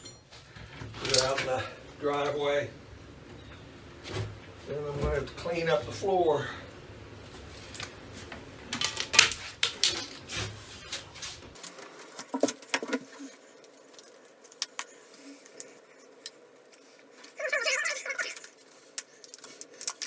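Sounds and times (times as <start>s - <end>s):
hard small objects clicking: 13.6s - 16.4s, 18.2s - 20.0s.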